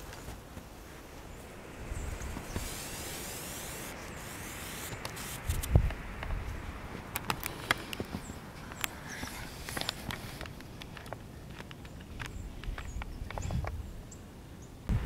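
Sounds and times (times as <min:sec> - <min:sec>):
footsteps crunching through snow: 0:00.0 - 0:03.2.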